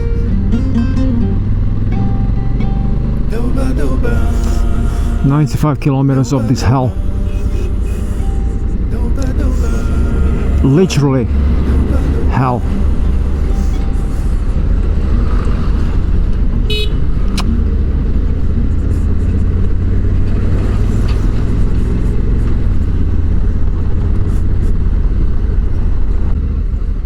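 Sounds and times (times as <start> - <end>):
motorcycle engine rumble: 0.0 - 27.0
wind and road noise: 0.0 - 27.0
horn toot: 9.5 - 17.6.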